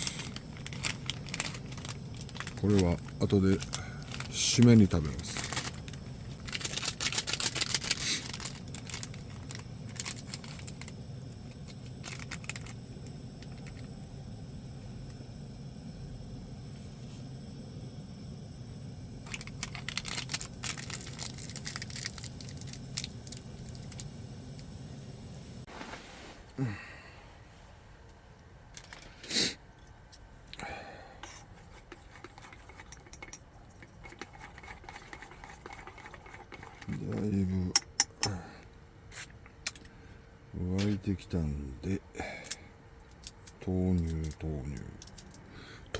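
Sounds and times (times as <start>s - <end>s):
low steady rumble: 0.0s - 25.7s.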